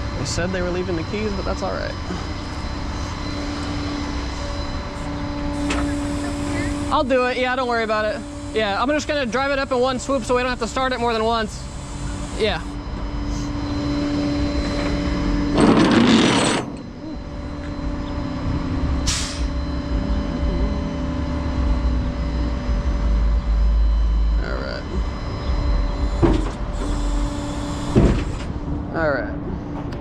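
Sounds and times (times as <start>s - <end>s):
air brake hissing: 19.0s - 19.5s.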